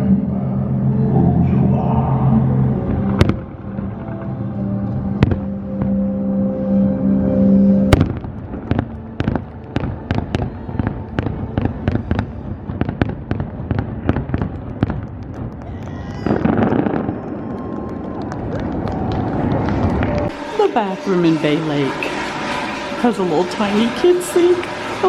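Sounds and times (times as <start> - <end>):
music: 0.0 - 15.0, 19.2 - 25.0
fireworks bangs: 2.8 - 6.6, 7.9 - 25.0
rapid fireworks pops: 7.9 - 20.5.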